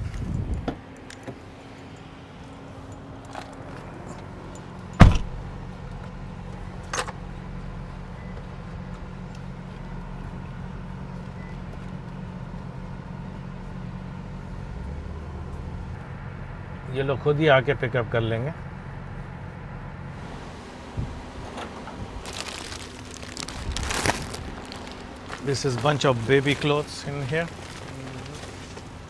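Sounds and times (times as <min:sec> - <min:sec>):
car engine idling: 0:17.9 - 0:29.0.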